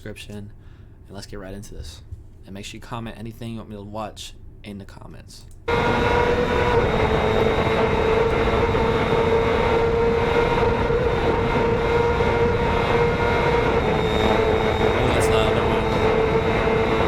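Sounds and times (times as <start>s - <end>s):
racing motorcycle engine at high revs: 5.7s - 17.0s.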